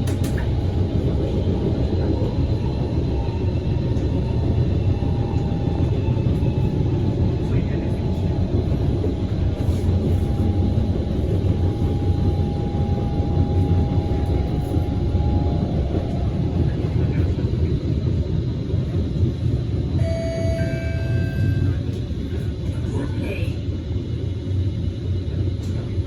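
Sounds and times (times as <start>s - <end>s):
train wheels rumbling on rails: 0.0s - 26.0s
electronic tones: 20.0s - 21.8s.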